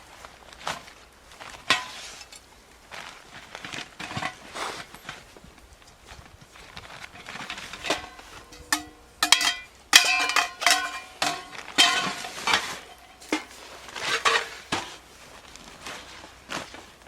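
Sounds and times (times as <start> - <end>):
metal cookware clinking: 7.2 - 14.7.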